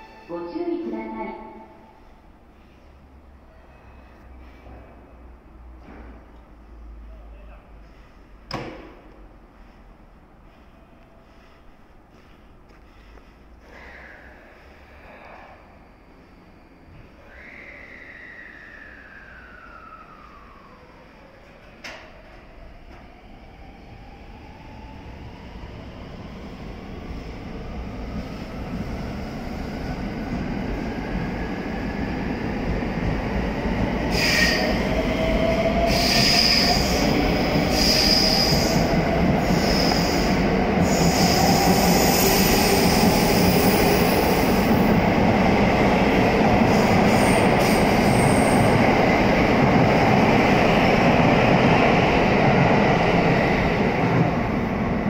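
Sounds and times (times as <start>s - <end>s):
brief high squeals: 3.5s - 4.5s.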